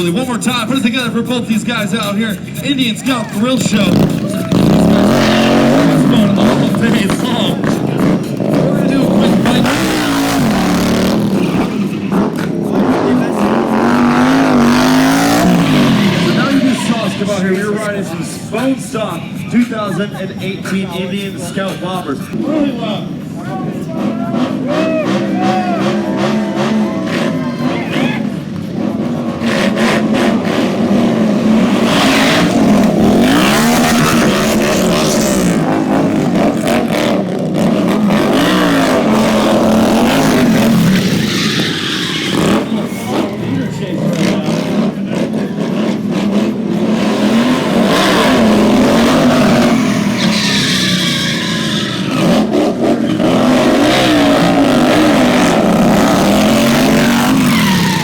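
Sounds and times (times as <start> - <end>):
motorcycle engine revving: 0.0 - 19.0, 22.2 - 58.0.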